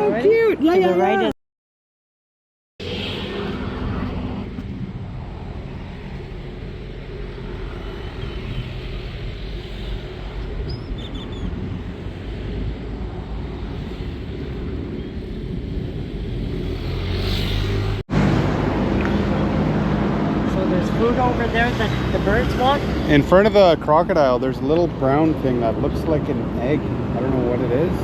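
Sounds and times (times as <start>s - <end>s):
road traffic rumble: 2.8s - 28.0s
wind noise: 2.8s - 28.0s
faint bird chirps: 10.6s - 11.5s.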